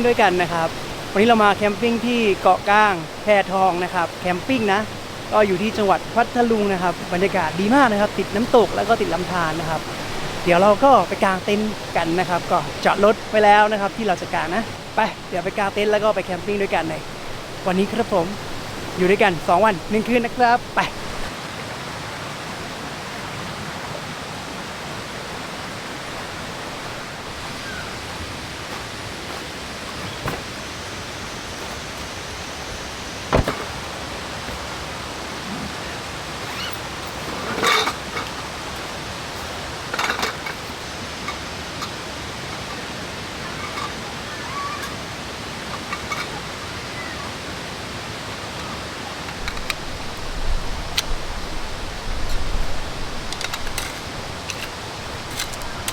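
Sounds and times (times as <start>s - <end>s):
waterfall and stream rushing: 0.0s - 55.9s.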